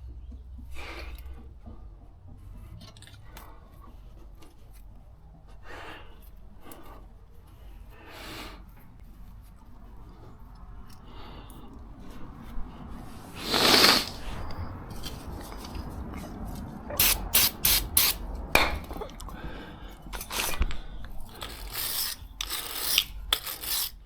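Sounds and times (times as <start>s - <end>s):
spray hiss: 13.4s - 14.3s, 17.0s - 18.2s
hand tool scraping rusty metal: 13.5s - 18.3s, 20.0s - 24.0s.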